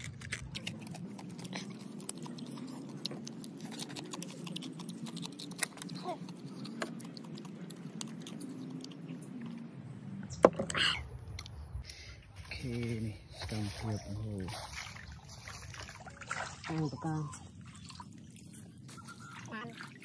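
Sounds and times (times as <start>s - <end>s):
chewing and crunching crab shell: 0.0s - 9.6s.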